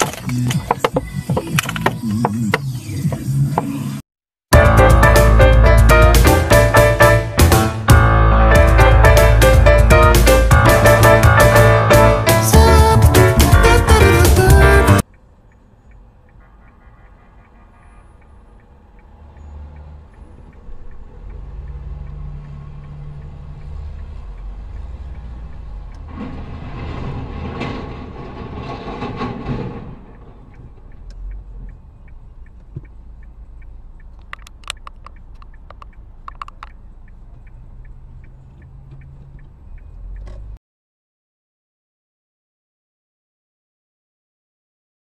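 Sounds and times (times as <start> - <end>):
car engine and road rumble: 0.0 - 40.6
sharp clicks and taps: 30.5 - 40.5.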